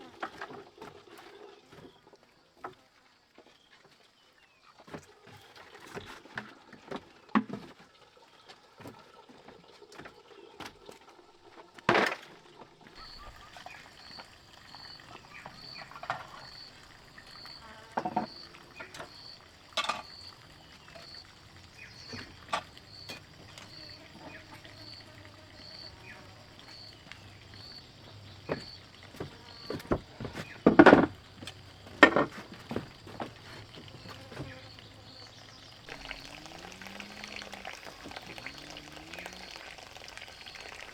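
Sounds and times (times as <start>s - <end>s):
insect chirring: 13.0s - 40.9s.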